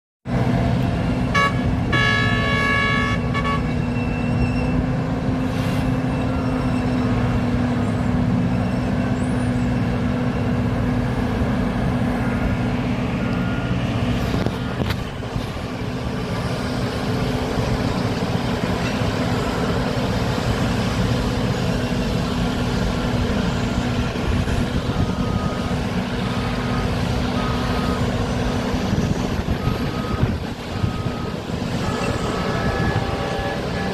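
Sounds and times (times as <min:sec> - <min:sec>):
diesel excavators and trucks running: 0:00.3 - 0:33.9
multi-tone horn: 0:01.3 - 0:03.8
short beeps: 0:13.2 - 0:13.8.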